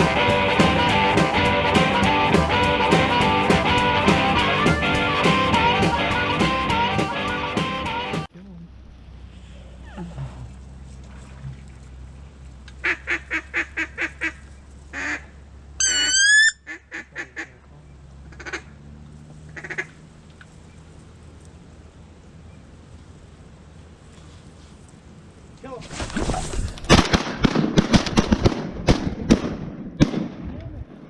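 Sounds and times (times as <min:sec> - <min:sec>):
loud wavering honk: 0:00.0 - 0:08.3, 0:15.8 - 0:17.3
duck quacking: 0:12.8 - 0:14.4, 0:15.0 - 0:17.6, 0:18.3 - 0:18.7, 0:19.6 - 0:20.0.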